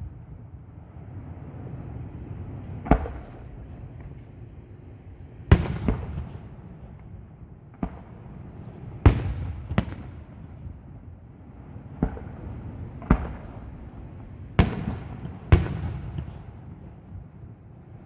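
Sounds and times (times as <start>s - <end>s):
continuous low rumble: 0.0s - 18.0s
firework shells booming: 2.6s - 4.2s, 5.5s - 11.2s, 11.8s - 17.5s.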